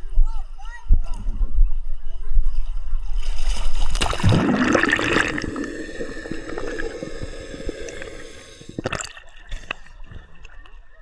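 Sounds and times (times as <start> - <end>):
water splashing from swimming: 3.2 - 10.6.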